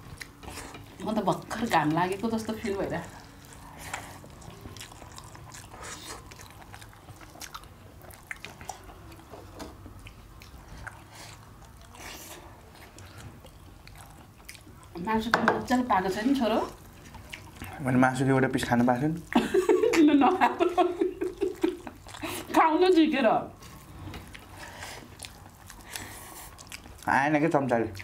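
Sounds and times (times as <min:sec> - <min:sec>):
chewing and wet mouth smacks: 0:00.0 - 0:02.2, 0:03.2 - 0:15.0, 0:16.7 - 0:17.9, 0:21.3 - 0:22.5, 0:23.6 - 0:28.0.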